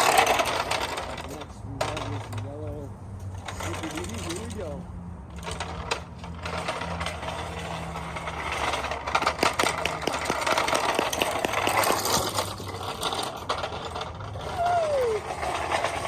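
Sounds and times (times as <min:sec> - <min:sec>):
toy truck motor: 0:00.0 - 0:02.7, 0:05.3 - 0:16.0
tyres scrabbling: 0:00.0 - 0:16.0
sharp knocks and clicks: 0:09.0 - 0:13.2.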